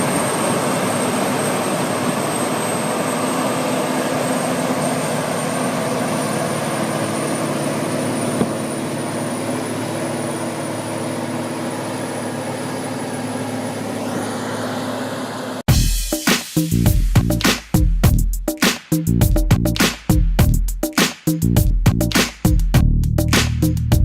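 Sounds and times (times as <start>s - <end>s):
large engine running: 0.0s - 15.7s.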